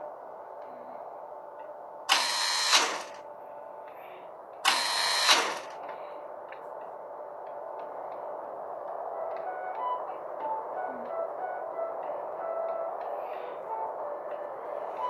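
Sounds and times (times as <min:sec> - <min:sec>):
loud buzzing mechanical noise: 0:02.1 - 0:03.2, 0:04.6 - 0:05.8.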